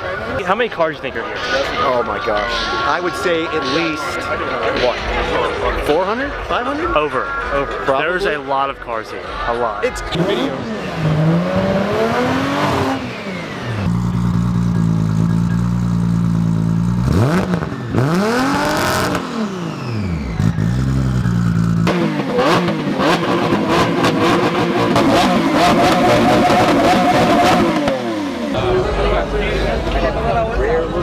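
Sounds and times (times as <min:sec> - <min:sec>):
car engine revving: 0:09.2 - 0:31.0.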